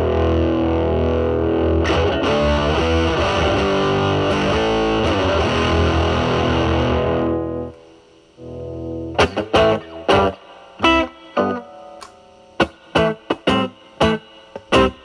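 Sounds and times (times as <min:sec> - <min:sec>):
fuzz electric guitar stabs: 0:00.0 - 0:15.0.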